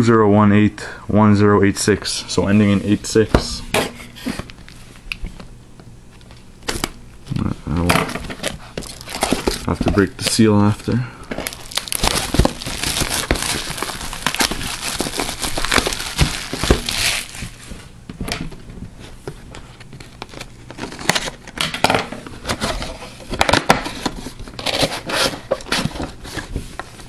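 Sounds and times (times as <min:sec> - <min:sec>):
wrappers crinkling and tearing: 0:08.4 - 0:10.4, 0:11.4 - 0:17.7.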